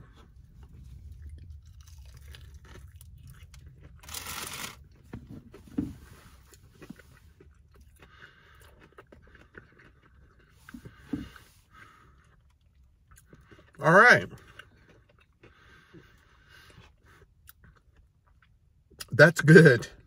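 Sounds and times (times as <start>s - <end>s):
chewing: 0.0s - 19.1s
crunchy fried food bite: 1.6s - 5.0s.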